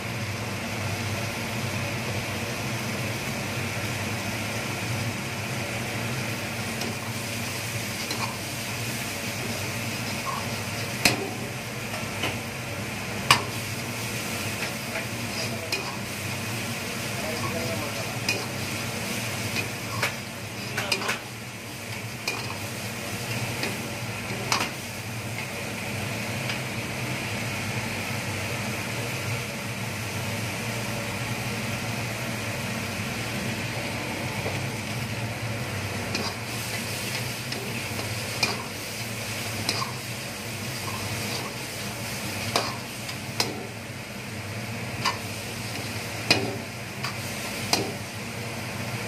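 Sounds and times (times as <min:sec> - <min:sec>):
gravy sizzling in a pan: 0:00.0 - 0:49.0.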